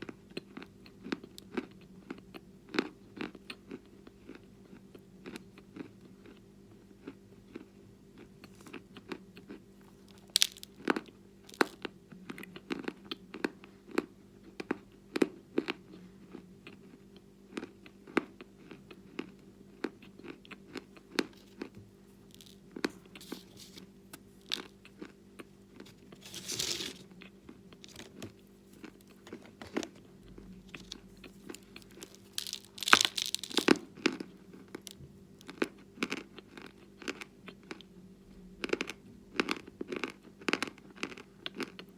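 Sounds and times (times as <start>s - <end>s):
faint steady hum: 0.0s - 41.9s
chalk crunching while chewed: 7.0s - 13.2s, 16.7s - 37.8s.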